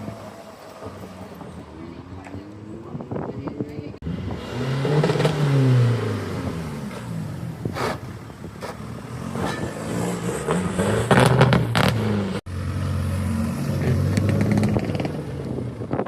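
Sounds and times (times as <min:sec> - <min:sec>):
car engine revving: 0:04.0 - 0:15.8.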